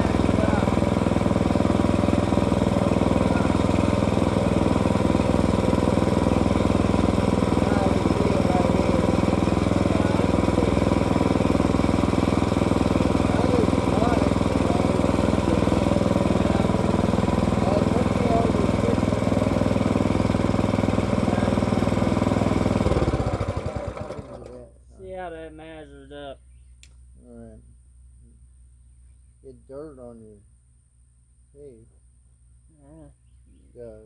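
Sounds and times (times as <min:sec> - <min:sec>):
small gasoline saw engine running: 0:00.0 - 0:24.7.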